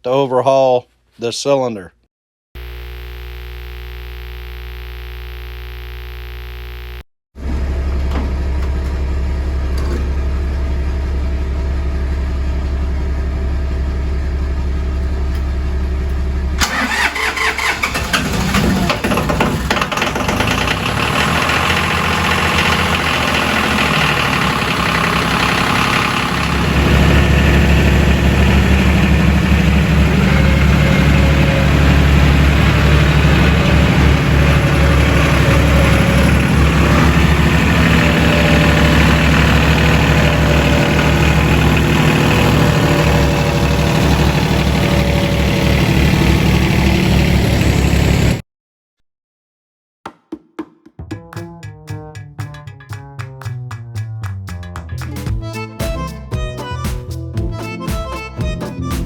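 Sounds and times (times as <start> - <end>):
engine running: 2.6 - 48.4.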